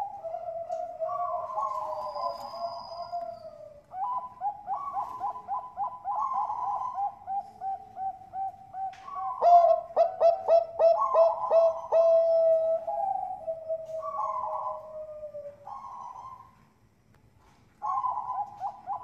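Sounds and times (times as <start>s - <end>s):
dove cooing: 0.0s - 16.6s, 17.8s - 19.0s.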